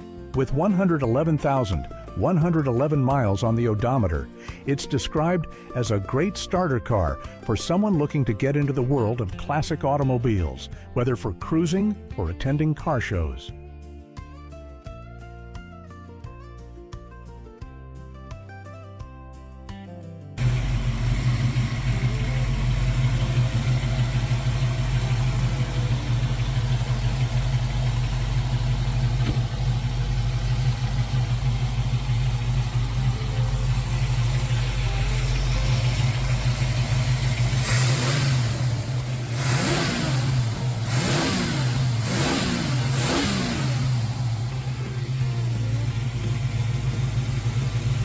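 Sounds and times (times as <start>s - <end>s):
engine idling: 20.4s - 48.0s
engine revving: 20.4s - 48.0s.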